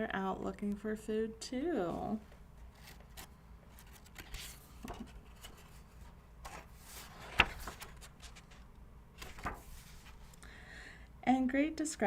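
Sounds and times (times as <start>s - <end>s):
paper rustling page turned: 2.7s - 10.4s.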